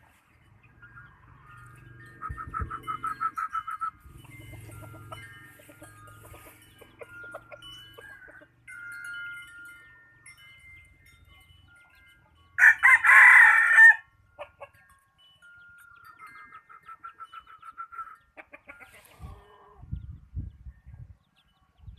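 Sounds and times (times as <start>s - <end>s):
rooster crowing: 12.6s - 14.1s.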